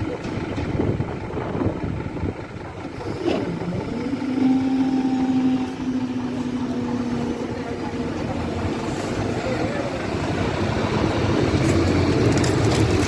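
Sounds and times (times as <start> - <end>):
electric train running: 2.7 - 13.0.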